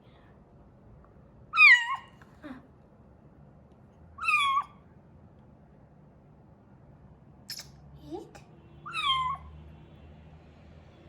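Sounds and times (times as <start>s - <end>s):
kitten meowing: 1.6s - 2.0s, 4.2s - 4.7s, 8.9s - 9.5s.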